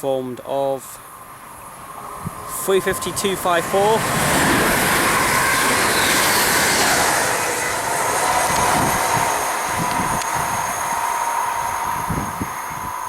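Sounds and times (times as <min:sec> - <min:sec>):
electric train passing: 0:00.7 - 0:13.0.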